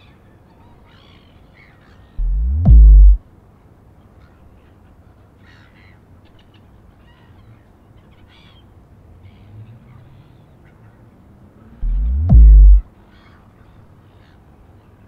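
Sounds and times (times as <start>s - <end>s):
steady low rumble: 2.2s - 3.2s, 11.8s - 12.8s.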